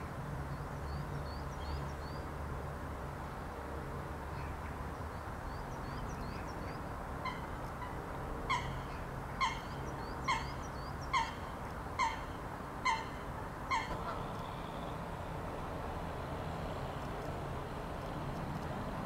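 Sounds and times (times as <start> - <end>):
faint chirps of small birds: 0.0 - 2.4, 4.2 - 15.5.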